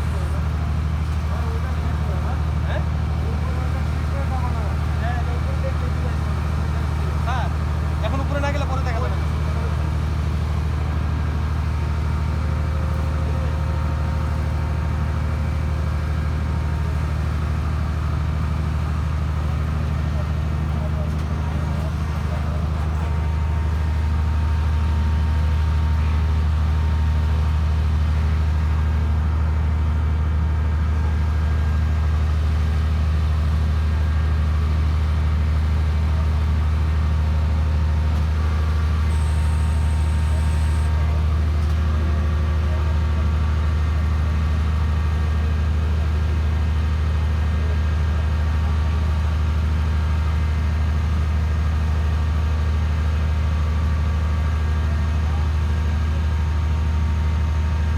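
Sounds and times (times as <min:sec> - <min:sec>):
hydraulic power unit humming: 0:11.7 - 0:43.3.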